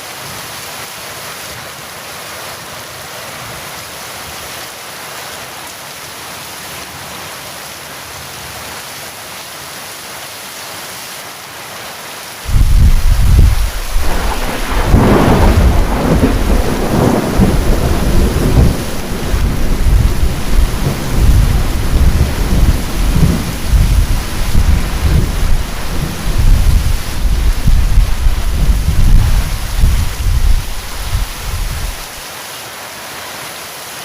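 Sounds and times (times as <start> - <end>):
heavy rain hissing: 8.6 - 34.0
thunder cracking and rumbling: 12.5 - 32.2.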